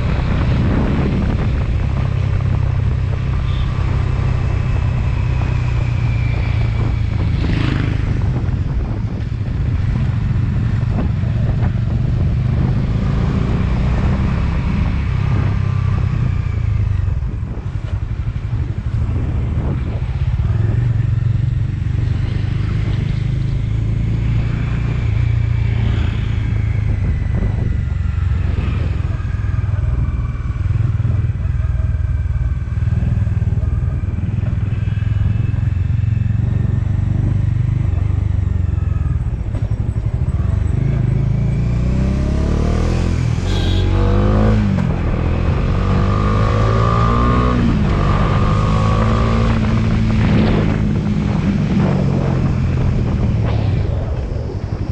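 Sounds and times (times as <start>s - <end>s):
motorcycle engine rumble: 0.0s - 54.9s
road noise: 0.0s - 54.9s
wind noise: 0.0s - 54.9s.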